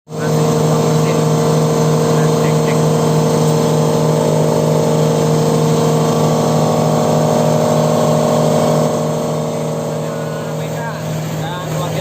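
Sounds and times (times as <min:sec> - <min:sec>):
machine humming: 0:00.1 - 0:12.0.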